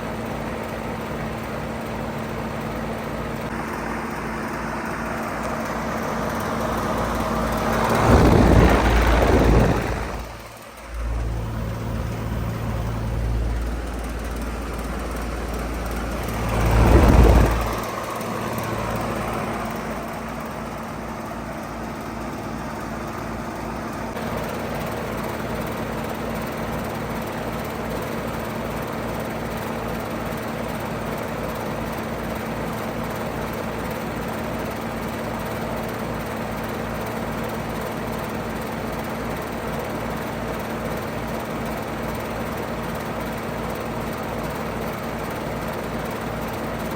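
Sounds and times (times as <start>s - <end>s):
heat pump humming: 0.0s - 25.0s
loud rush of noise: 6.4s - 19.7s.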